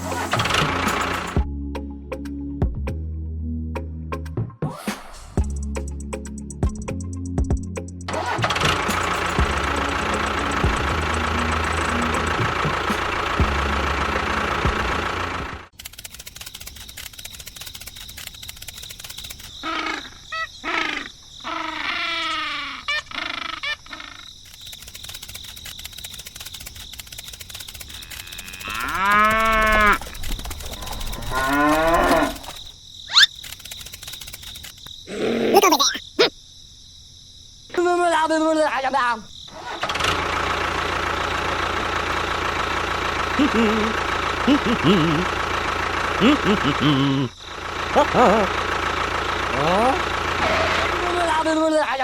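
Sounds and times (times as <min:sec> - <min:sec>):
music: 0:00.0 - 0:15.0
cattle mooing: 0:28.1 - 0:30.0, 0:30.8 - 0:32.5.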